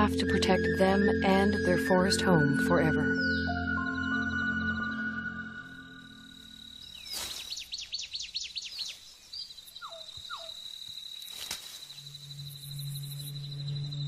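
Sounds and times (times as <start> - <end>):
low steady music tone: 0.0 - 6.9, 12.2 - 14.0
bird chirping: 0.0 - 11.2
insect trilling: 0.4 - 14.0.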